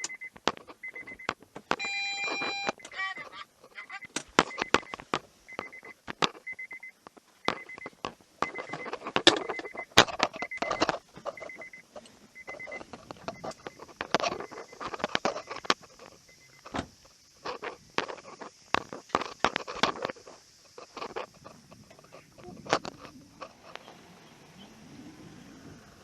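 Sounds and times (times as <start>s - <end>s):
electronic beeps: 0.0s - 16.8s
small objects clicking and rattling: 17.4s - 23.8s.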